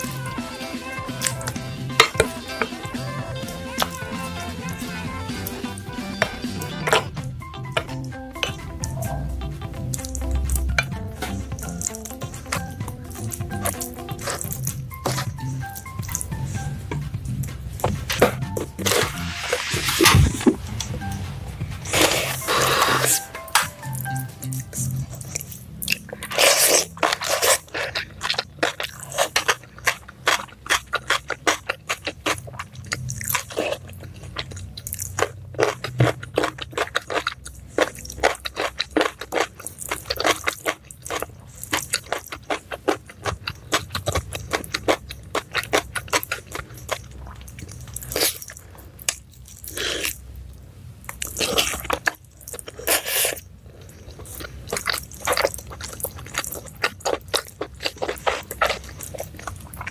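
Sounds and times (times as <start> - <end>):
person chewing crunchy food: 0.0 - 21.1, 21.7 - 59.9.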